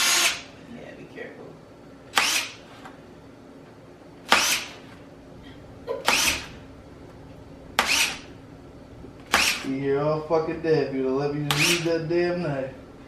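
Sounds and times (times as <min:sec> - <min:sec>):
power drill bursts through tape: 0:00.0 - 0:00.5, 0:02.1 - 0:02.6, 0:04.3 - 0:04.7, 0:06.0 - 0:06.5, 0:07.8 - 0:08.3, 0:09.3 - 0:09.7, 0:11.5 - 0:11.9.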